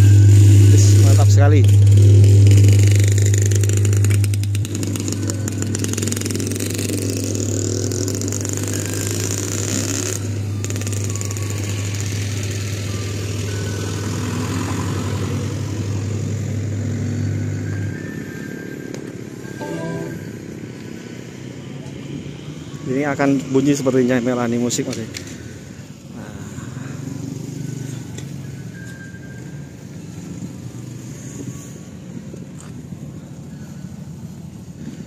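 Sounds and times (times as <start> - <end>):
low bass tone from sound system: 0.0 - 5.8, 19.6 - 20.5.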